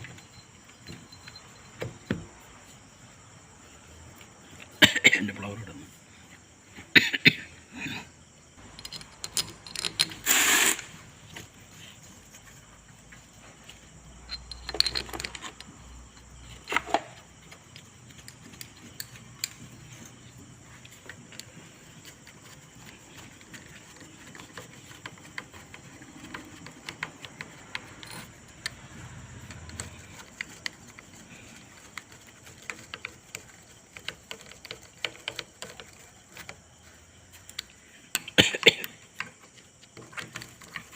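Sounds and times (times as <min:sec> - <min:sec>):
metal tools clinking: 0:08.6 - 0:10.8, 0:14.2 - 0:16.8.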